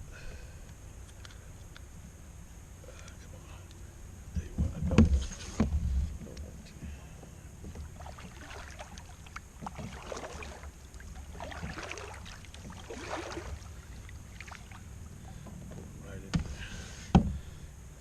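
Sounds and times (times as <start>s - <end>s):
low steady rumble: 0.0s - 18.0s
splashing swishes: 7.9s - 14.9s.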